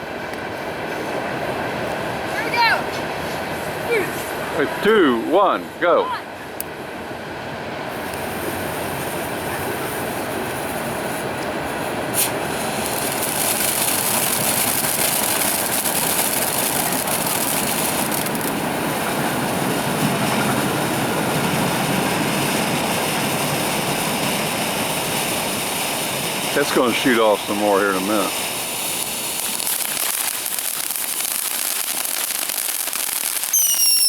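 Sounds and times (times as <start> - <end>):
firework fountain hissing sparks: 7.8 - 34.0.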